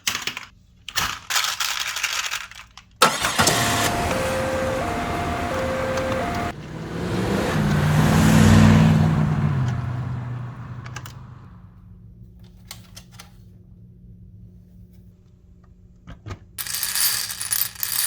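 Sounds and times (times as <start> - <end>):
marbles clicking together: 16.6 - 18.0
marbles rolling rumble: 16.6 - 18.0.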